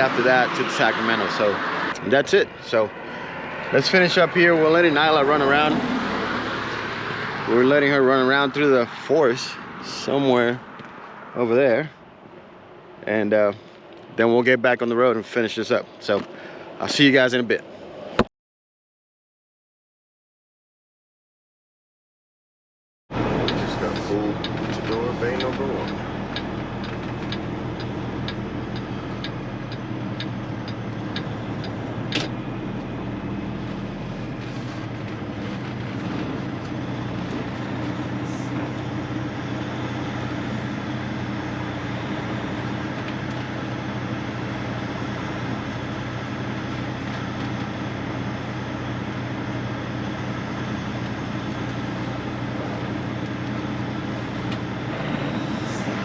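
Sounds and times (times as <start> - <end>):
truck diesel engine idling: 23.2 - 56.0
regular ticking: 23.4 - 32.5.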